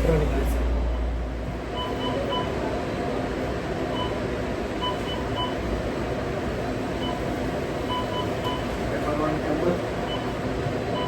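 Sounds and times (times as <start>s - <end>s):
kitchen machine and ventilation hum: 0.0s - 11.0s
short electronic beeps: 1.7s - 2.6s, 3.9s - 4.2s, 4.8s - 5.7s, 7.0s - 8.7s, 10.0s - 11.0s.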